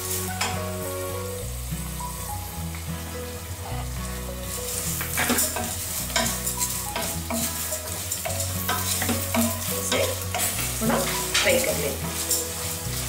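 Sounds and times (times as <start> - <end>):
food sizzling: 0.0 - 13.0
spatula scraping pan: 3.6 - 13.0.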